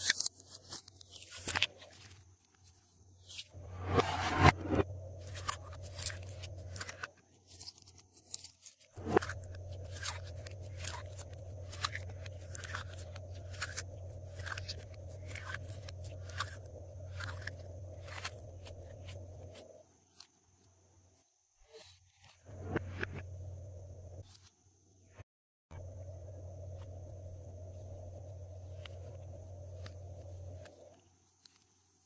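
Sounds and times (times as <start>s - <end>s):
steady low hum: 3.5s - 7.2s, 9.0s - 20.0s, 22.4s - 31.5s.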